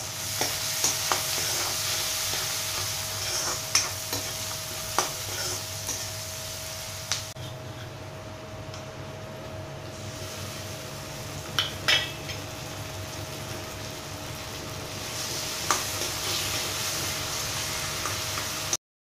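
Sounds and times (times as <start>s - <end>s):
food sizzling in oil: 0.0s - 7.4s, 9.9s - 18.8s
spoon stirring a pan: 0.3s - 6.2s.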